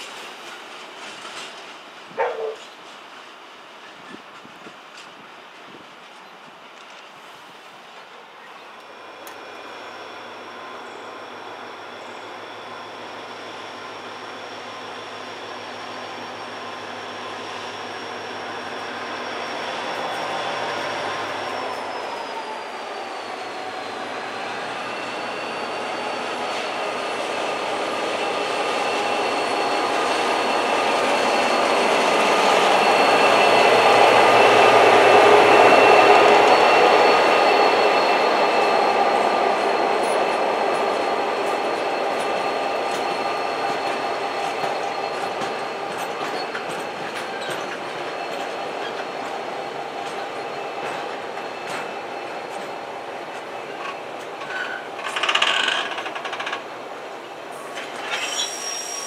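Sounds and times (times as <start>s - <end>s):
freight train passing: 0.0s - 59.0s
high-pitched wheel squeal: 16.2s - 49.2s, 57.8s - 59.0s.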